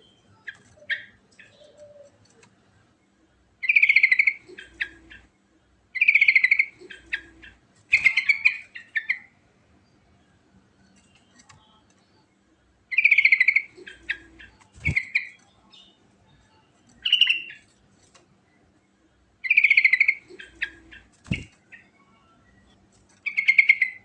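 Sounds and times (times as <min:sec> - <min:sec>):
bird singing chattering phrases: 0:00.0 - 0:02.4, 0:03.6 - 0:05.4, 0:06.0 - 0:09.4, 0:12.9 - 0:16.0, 0:16.9 - 0:17.7, 0:19.4 - 0:22.0, 0:23.2 - 0:24.0.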